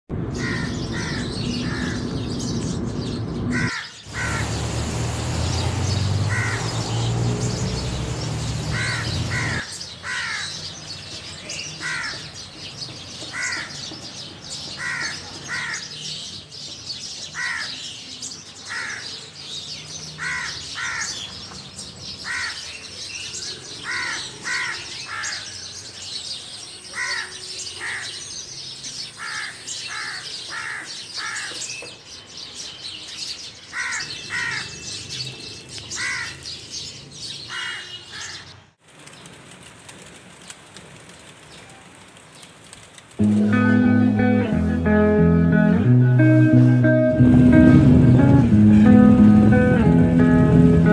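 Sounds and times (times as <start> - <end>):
bird calling: 0.3 - 10.8, 33.7 - 38.6
loud low rumble: 43.3 - 50.9.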